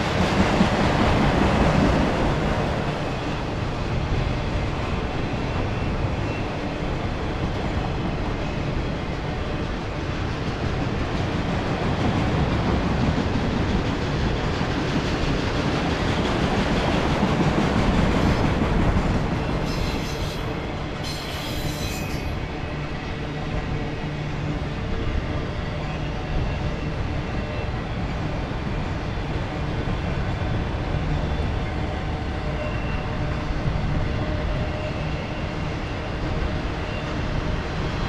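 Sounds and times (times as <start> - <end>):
freight train rolling past: 0.0 - 38.0
high-pitched wheel squeals: 19.6 - 22.4.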